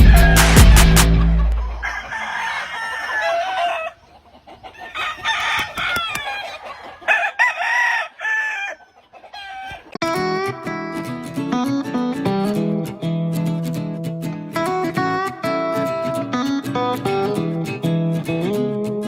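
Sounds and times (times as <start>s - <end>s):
roosters crowing: 0.0s - 10.0s.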